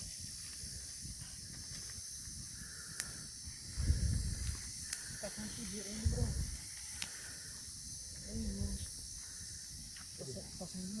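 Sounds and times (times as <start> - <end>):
campfire burning: 0.0 - 11.0.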